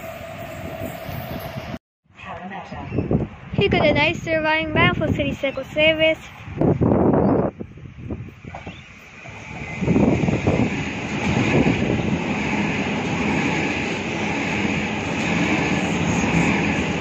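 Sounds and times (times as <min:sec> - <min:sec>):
train wheels rumbling on rails: 0:03.6 - 0:17.0.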